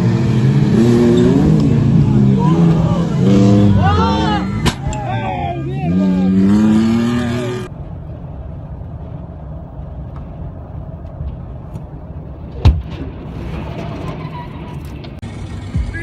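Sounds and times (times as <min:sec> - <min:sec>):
engine revving: 0:00.0 - 0:07.7
vehicle road and engine rumble: 0:00.0 - 0:16.0.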